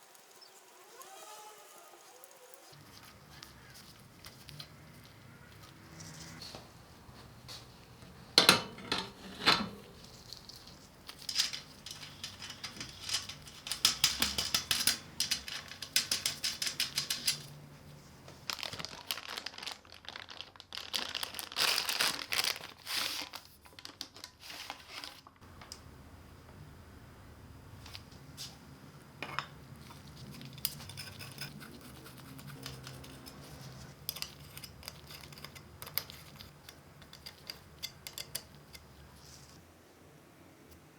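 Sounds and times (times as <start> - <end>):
wrapping crinkling and rustling: 0.2 - 6.7, 9.8 - 25.8.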